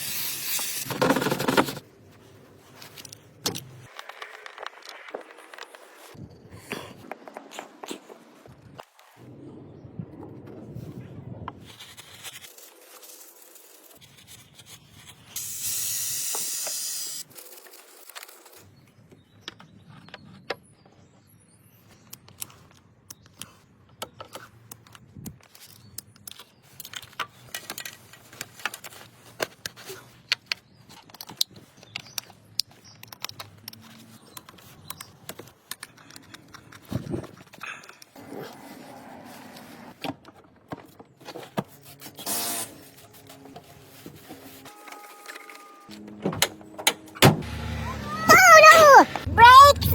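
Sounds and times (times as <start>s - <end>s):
aerosol spray can hissing: 0.0s - 0.9s.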